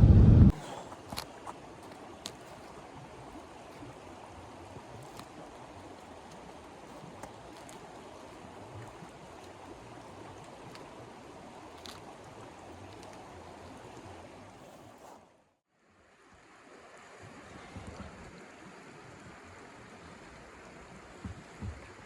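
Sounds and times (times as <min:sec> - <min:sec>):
steady rushing noise: 0:00.0 - 0:00.6.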